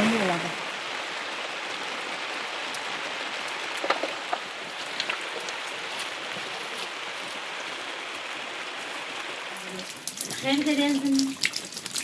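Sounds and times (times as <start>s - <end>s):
heavy rain falling: 0.0s - 11.3s
sharp drips or taps: 9.6s - 12.0s.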